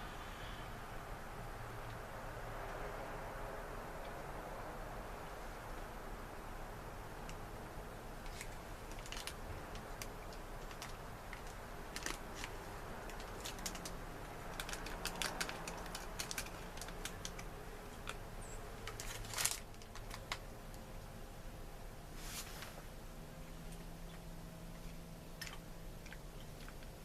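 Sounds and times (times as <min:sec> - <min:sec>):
low steady background noise: 0:00.0 - 0:27.0
scrape or rustle: 0:22.1 - 0:22.9.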